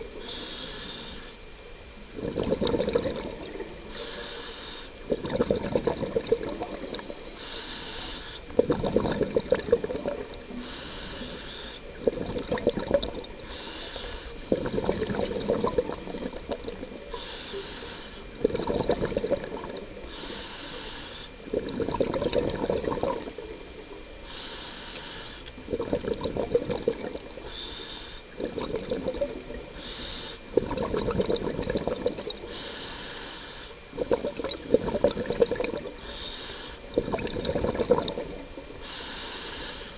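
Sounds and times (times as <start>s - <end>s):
regulator inhale hiss: 0.0s - 1.6s, 3.3s - 5.2s, 6.6s - 8.7s, 10.2s - 12.2s, 13.3s - 16.2s, 16.9s - 18.5s, 19.8s - 21.6s, 23.2s - 25.8s, 27.2s - 30.6s, 32.3s - 34.1s, 35.6s - 37.0s, 38.1s - 39.9s
exhaled bubbles gurgling: 1.3s - 33.1s, 33.7s - 39.9s.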